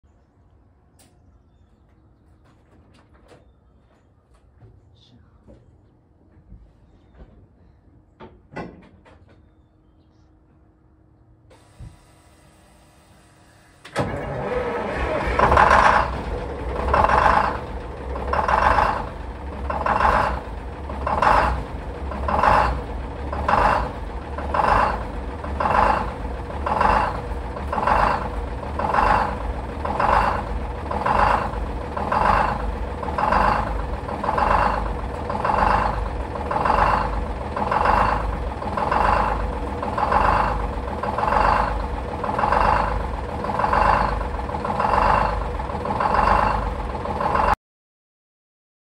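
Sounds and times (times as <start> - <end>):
two-stroke diesel engine droning: 11.5 - 47.6.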